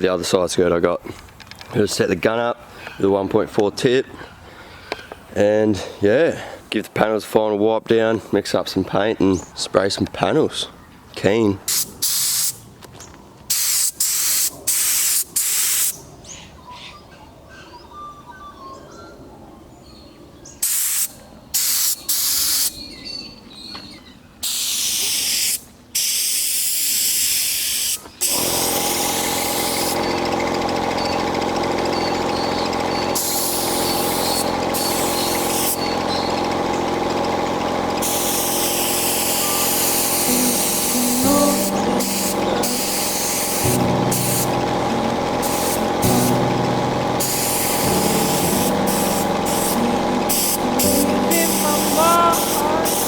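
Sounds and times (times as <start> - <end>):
paint spray gun hissing: 11.7 - 12.6, 13.5 - 16.0, 20.6 - 22.7, 24.4 - 53.0
steady hum: 38.0 - 53.0.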